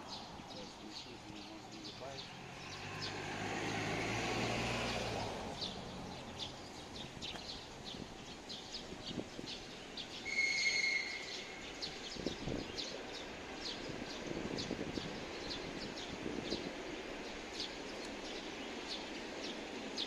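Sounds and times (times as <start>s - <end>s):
small birds chirping: 0.0s - 20.0s
passing vehicle engine: 0.1s - 8.4s
high whistle-like tone: 10.3s - 11.4s.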